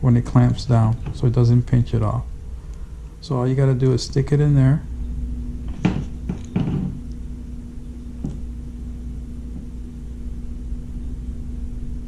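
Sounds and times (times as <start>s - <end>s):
low background hum: 0.0s - 12.0s
plastic parts knocking: 5.7s - 7.0s.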